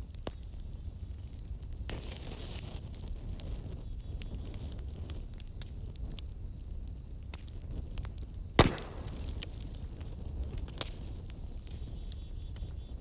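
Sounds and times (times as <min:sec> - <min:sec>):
wood fire crackling: 0:00.0 - 0:13.0
loud pop of burning wood: 0:08.5 - 0:11.9.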